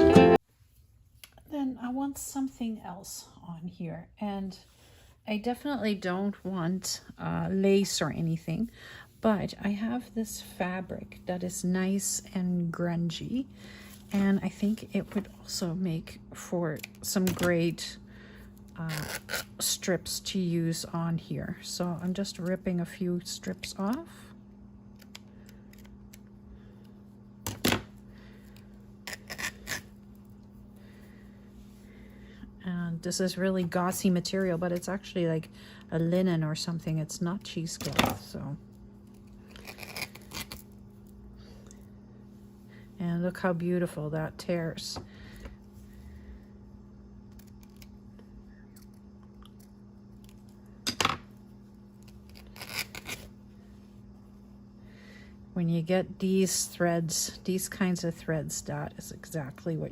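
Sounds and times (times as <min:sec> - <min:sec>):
steady low hum: 0:03.1 - 0:59.9
fabric ripping: 0:52.1 - 0:53.3.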